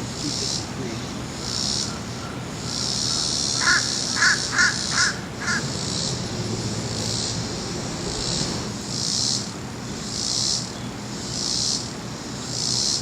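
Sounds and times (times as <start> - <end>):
distant jet airliner rumble: 0.0 - 11.0
pulsing insect drone: 0.0 - 13.0
crow cawing: 2.7 - 6.1.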